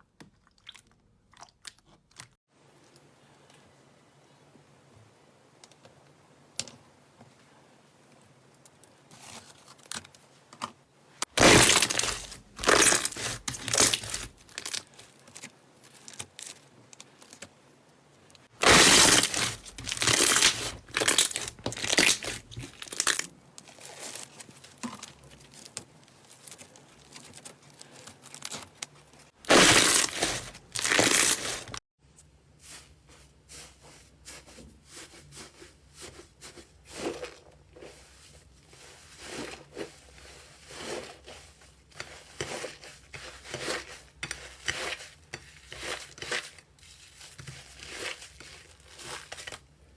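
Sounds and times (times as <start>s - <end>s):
slime crackling and popping: 11.3s - 14.9s, 18.6s - 25.8s.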